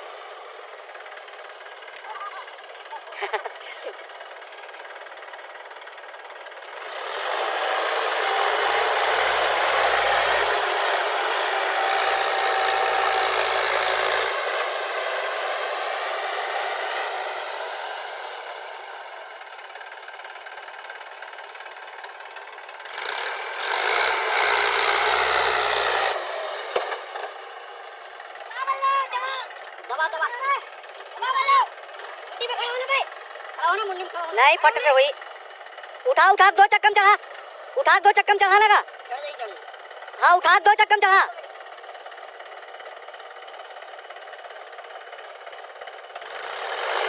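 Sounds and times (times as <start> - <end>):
heavy machinery engine revving: 6.6 - 19.6, 22.8 - 28.4, 45.6 - 47.0.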